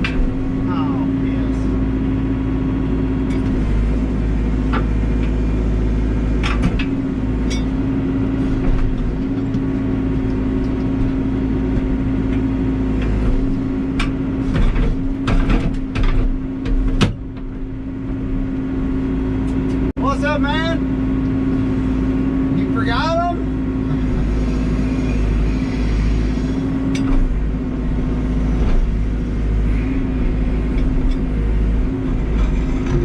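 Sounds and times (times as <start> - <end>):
diesel engine running: 0.0 - 33.0
sharp knocks and clatters: 6.4 - 7.8, 8.5 - 17.6.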